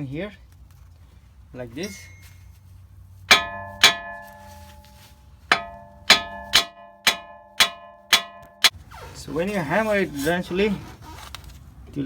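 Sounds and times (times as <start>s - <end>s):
hammer clanking on metal: 3.3s - 8.8s.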